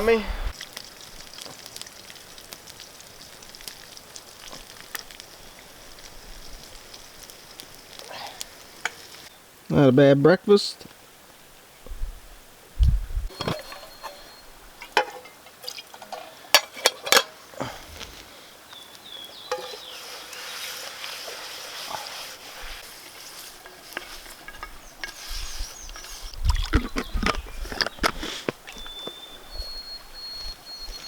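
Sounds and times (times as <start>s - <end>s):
steady hiss: 0.0s - 15.6s, 17.4s - 26.5s
cookware and utensils clinking: 13.3s - 17.4s, 19.5s - 19.9s.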